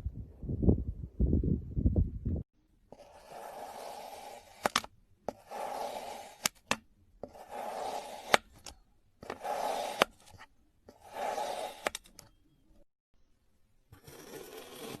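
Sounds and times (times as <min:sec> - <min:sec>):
scraping strokes: 0:02.9 - 0:12.2.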